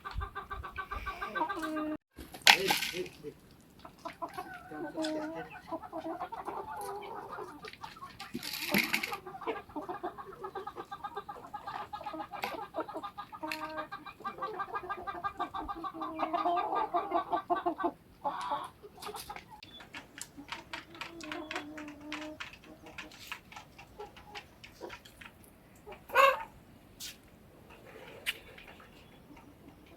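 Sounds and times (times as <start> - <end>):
chickens clucking: 0.0 - 2.0, 2.6 - 29.9
chicken squawking: 8.8 - 19.4, 25.9 - 26.6.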